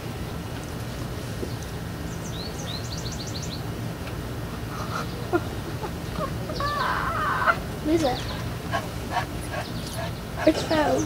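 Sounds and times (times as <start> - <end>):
low background hum: 0.0 - 11.0
bird chirping: 2.1 - 3.7, 6.1 - 11.0.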